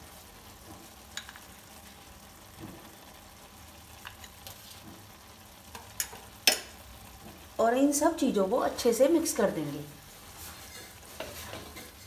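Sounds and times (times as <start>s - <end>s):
faint sizzle in ghee: 0.0s - 12.0s.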